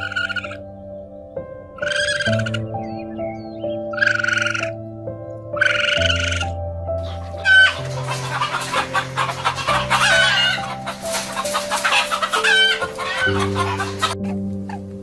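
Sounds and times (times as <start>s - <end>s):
background music: 0.0s - 15.0s
chickens clucking: 5.6s - 14.4s.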